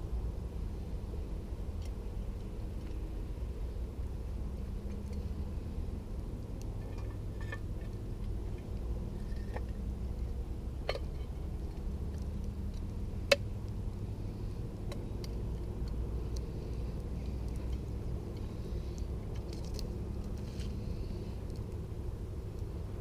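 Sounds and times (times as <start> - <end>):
steady low rumble: 0.0 - 23.0
campfire crackling and popping: 7.7 - 22.8.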